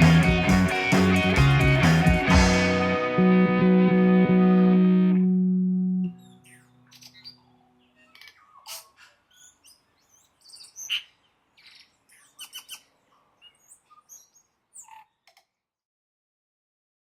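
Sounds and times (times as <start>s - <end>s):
birdsong chirps and whistles: 6.2s - 15.0s.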